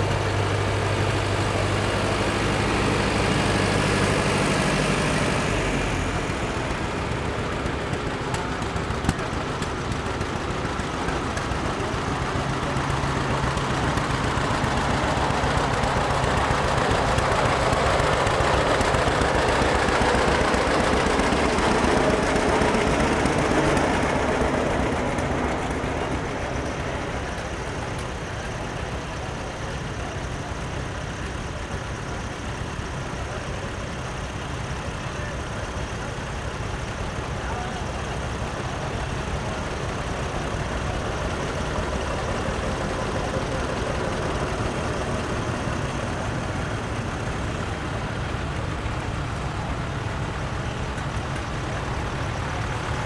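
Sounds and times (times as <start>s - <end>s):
tractor engine chugging: 0.0s - 53.0s.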